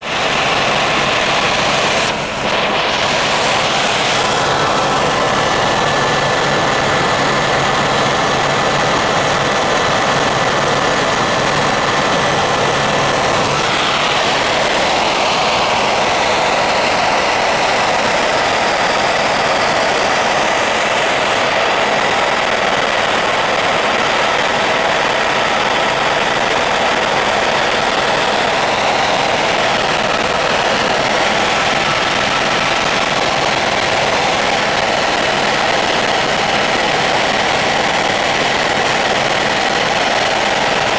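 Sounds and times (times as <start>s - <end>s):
helicopter engine and rotor drone: 0.0s - 40.9s.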